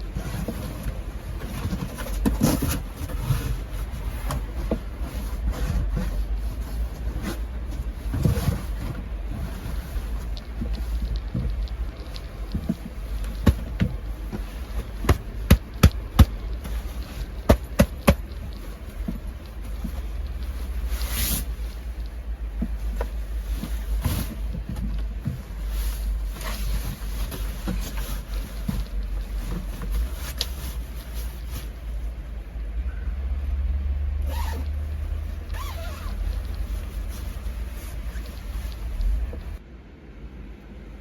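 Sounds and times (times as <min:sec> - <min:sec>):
rustling swish: 0:14.0 - 0:24.6, 0:34.2 - 0:39.6.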